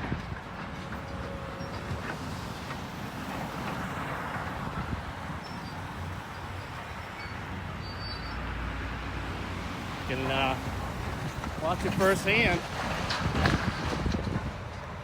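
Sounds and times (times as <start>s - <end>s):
heavy demolition machinery running: 0.0s - 4.8s, 10.1s - 15.0s.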